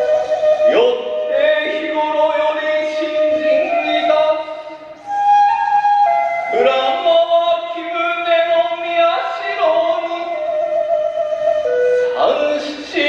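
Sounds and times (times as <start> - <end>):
melody of long sliding notes: 10.4 - 13.0.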